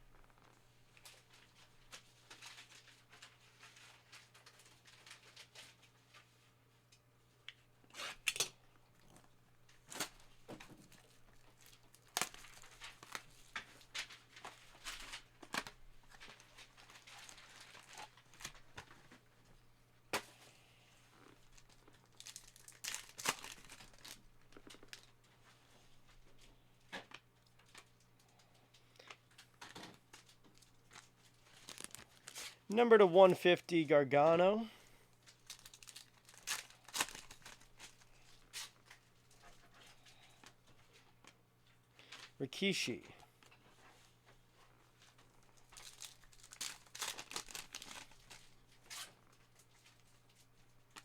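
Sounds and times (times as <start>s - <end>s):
faint steady hum: 0.0s - 51.0s
card pack wrappers tearing: 11.6s - 13.2s, 21.6s - 25.1s, 30.1s - 32.6s, 35.3s - 38.8s, 45.6s - 49.1s
cards rustling and clicking: 29.1s - 32.6s.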